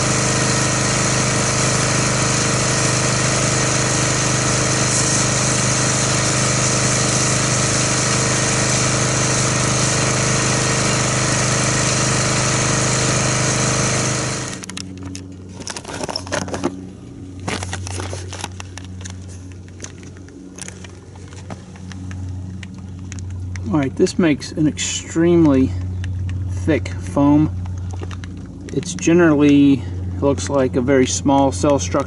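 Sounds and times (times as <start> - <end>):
pressure washer motor: 0.0 - 32.0
hiss of spray: 4.6 - 10.0.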